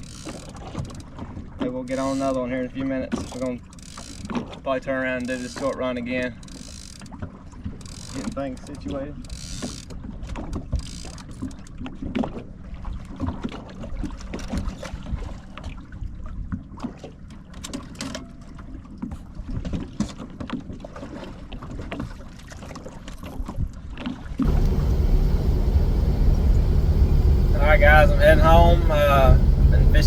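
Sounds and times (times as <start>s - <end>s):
loud steady rumble: 24.4s - 30.0s
low rumble: 24.4s - 30.0s.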